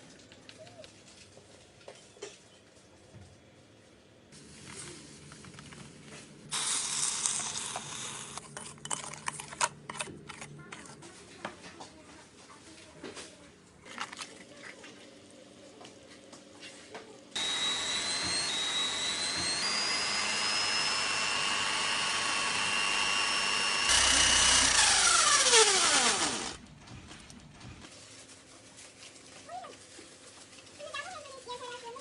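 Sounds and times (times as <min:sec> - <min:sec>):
electric drill whining: 0:17.4 - 0:26.6.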